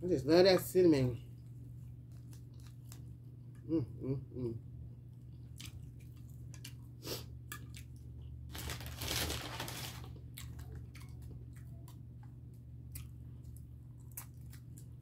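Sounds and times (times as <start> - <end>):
chewing and mouth sounds: 1.2 - 3.7, 5.1 - 8.5, 10.1 - 15.0.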